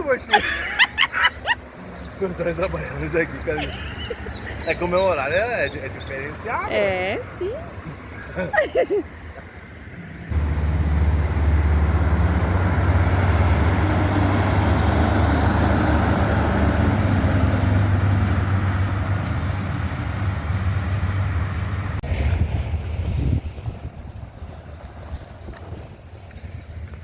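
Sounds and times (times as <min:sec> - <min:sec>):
road noise: 0:00.0 - 0:27.0
heavy truck engine running: 0:10.3 - 0:22.0.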